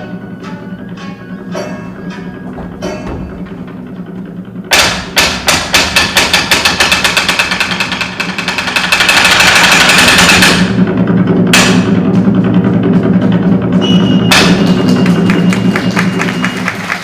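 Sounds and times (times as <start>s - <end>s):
wooden clappers struck: 0.4s - 4.0s, 4.7s - 10.8s, 14.3s - 16.8s.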